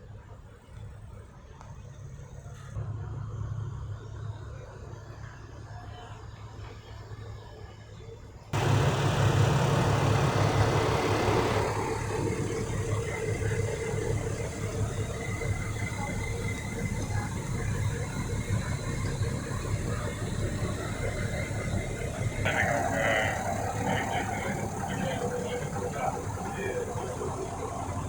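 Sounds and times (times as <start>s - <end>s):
diesel engine idling: 8.6s - 28.0s
faint high whine: 8.6s - 28.0s.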